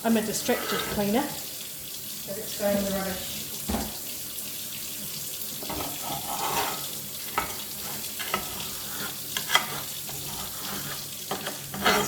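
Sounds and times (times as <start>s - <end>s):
metal spatula scraping frying pan: 0.1s - 1.4s, 5.6s - 12.0s.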